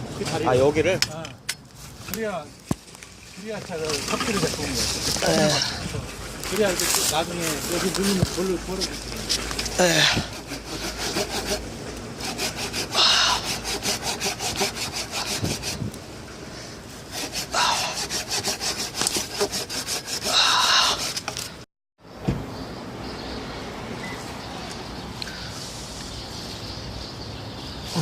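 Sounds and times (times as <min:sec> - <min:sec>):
hand saw rasping through log: 0:09.8 - 0:15.9, 0:17.0 - 0:21.5.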